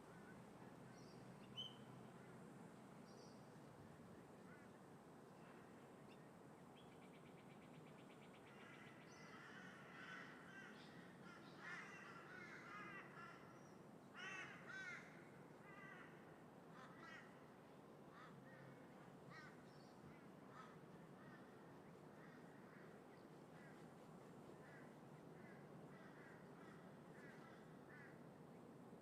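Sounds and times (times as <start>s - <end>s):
wind: 0.0s - 29.0s
crows cawing: 9.3s - 13.5s, 14.2s - 16.2s.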